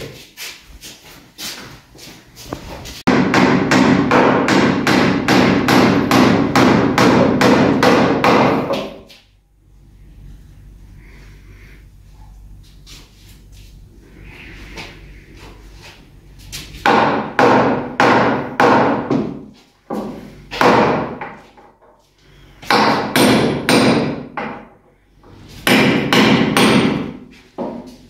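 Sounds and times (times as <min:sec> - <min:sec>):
hammer striking wooden boards: 0:03.1 - 0:09.0, 0:16.8 - 0:21.7, 0:22.7 - 0:24.7, 0:25.6 - 0:27.9.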